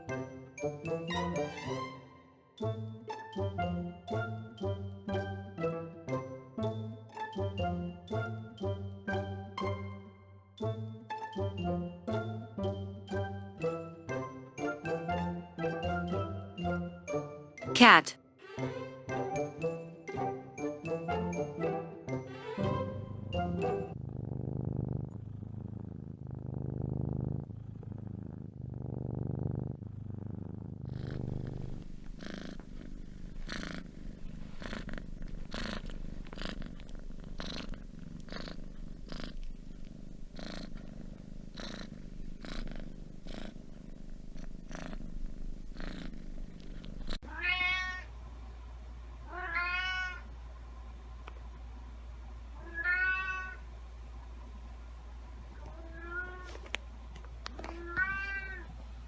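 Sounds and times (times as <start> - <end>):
cat purring: 22.8 - 48.0
cat meowing: 47.3 - 48.1, 49.3 - 50.2, 52.6 - 53.6, 55.7 - 56.6, 57.6 - 58.6.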